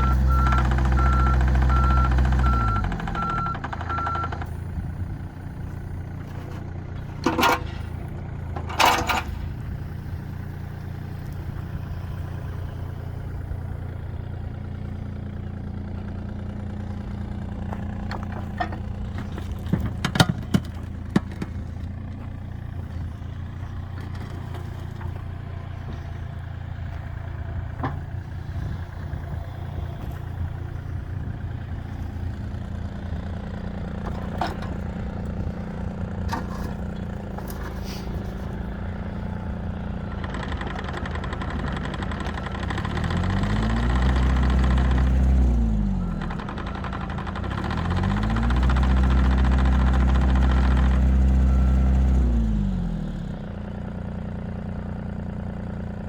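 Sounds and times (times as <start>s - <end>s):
excavator diesel engine idling: 0.0s - 56.0s.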